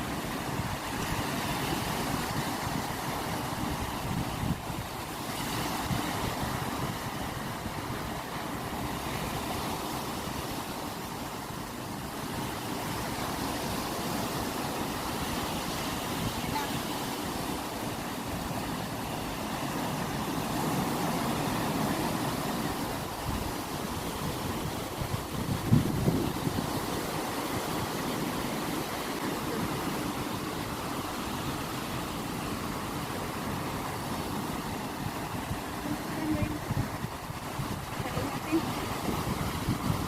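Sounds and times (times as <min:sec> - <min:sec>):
ocean waves breaking: 0:00.0 - 0:40.0.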